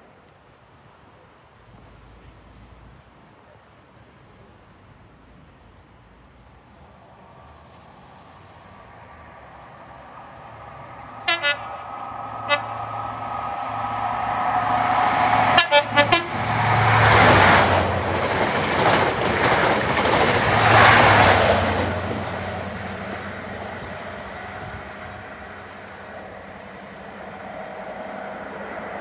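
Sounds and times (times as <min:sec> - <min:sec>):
train passing at speed: 0:06.4 - 0:29.0
train horn toots: 0:11.0 - 0:17.0.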